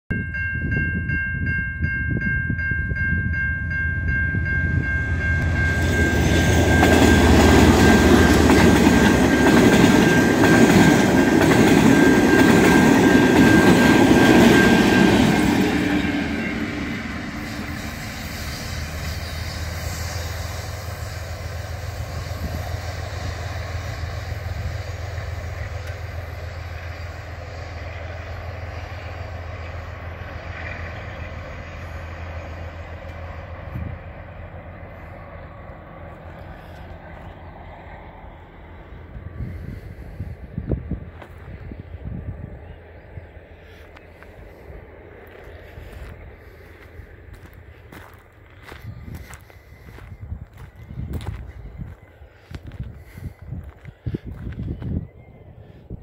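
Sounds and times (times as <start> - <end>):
level crossing bells ringing: 0.1 - 16.9
diesel locomotive passing: 0.1 - 56.0
rail wagons rolling on rails: 0.2 - 56.0.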